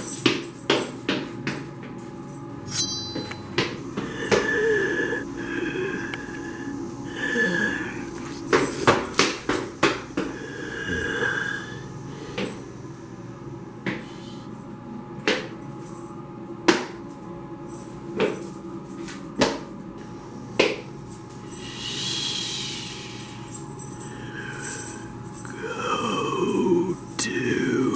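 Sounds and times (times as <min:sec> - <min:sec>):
steady low drone: 0:02.2 - 0:15.0, 0:21.4 - 0:27.9.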